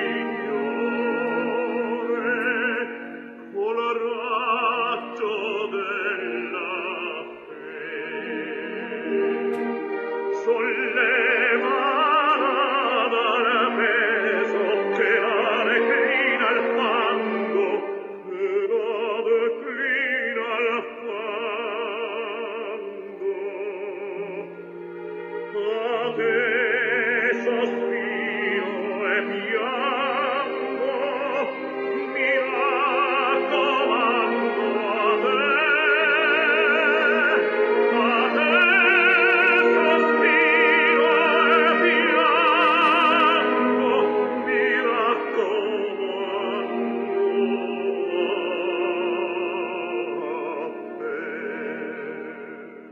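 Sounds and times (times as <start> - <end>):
operatic solo voice singing: 0.0 - 9.6, 10.3 - 52.9
instrumental accompaniment: 0.0 - 19.1.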